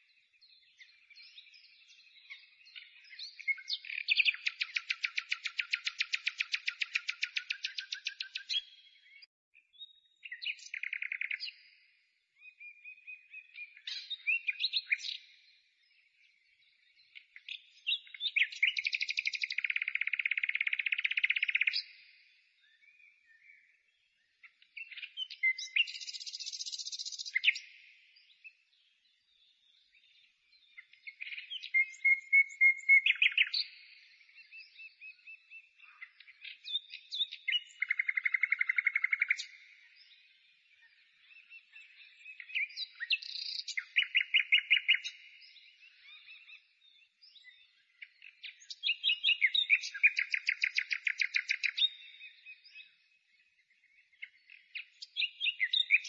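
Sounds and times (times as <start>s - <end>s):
songbird chirps and trills: 0.0s - 56.0s.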